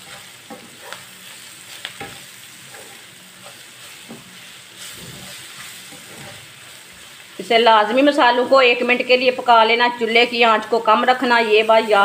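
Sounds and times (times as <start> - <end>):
spatula scraping and tapping pan: 0.0 - 6.8
vegetables sizzling in oil: 0.0 - 12.0.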